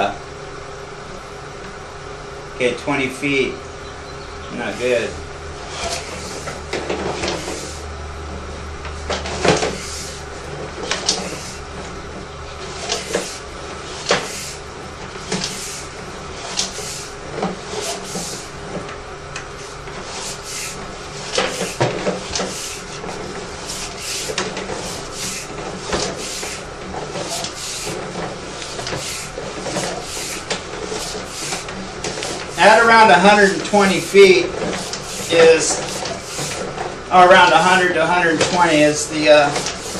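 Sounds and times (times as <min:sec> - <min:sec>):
steady hum: 0:00.0 - 0:39.9.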